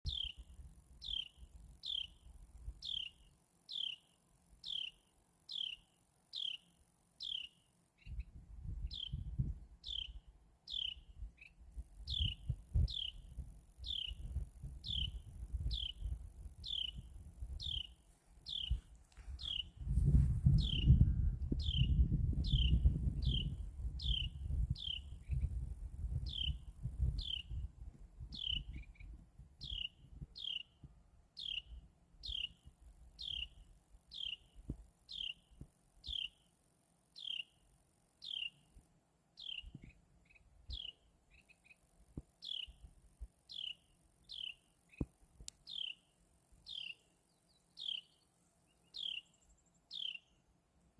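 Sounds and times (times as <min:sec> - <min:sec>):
wren chirping: 0:00.0 - 0:08.3, 0:08.9 - 0:21.0, 0:21.6 - 0:27.6, 0:28.3 - 0:30.8, 0:31.4 - 0:36.5, 0:37.1 - 0:38.8, 0:39.4 - 0:50.4
low rumble on microphone: 0:08.1 - 0:09.7, 0:12.0 - 0:30.3.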